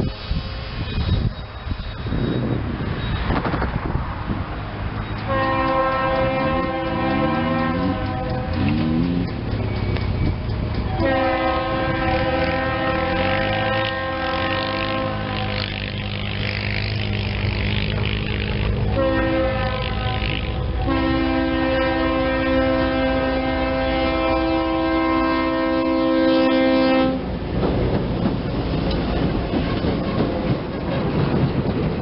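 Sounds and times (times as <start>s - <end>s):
locomotive engine rumble: 0.0s - 32.0s
train rolling along rails: 0.0s - 32.0s
locomotive air horn: 5.2s - 9.1s, 10.8s - 27.3s.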